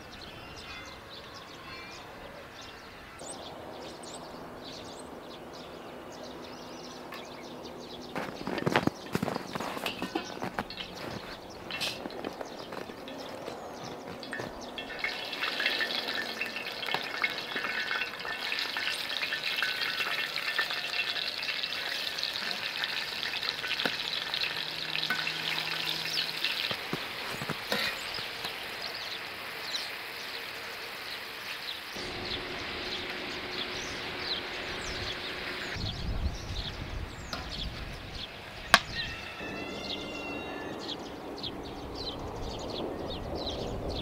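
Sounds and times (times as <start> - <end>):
food sizzling in a hot pan: 14.2 - 35.8.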